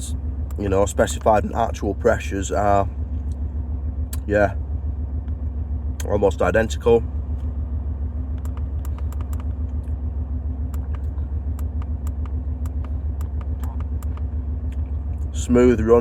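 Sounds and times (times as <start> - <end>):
diesel engine idling: 0.0 - 16.0
faint clicks: 8.3 - 10.0.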